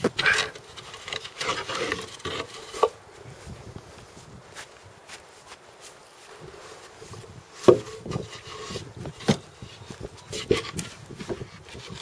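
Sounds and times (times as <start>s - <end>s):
wooden boards scraping: 0.0s - 3.0s, 7.0s - 12.0s
wooden boards knocking: 7.6s - 9.4s.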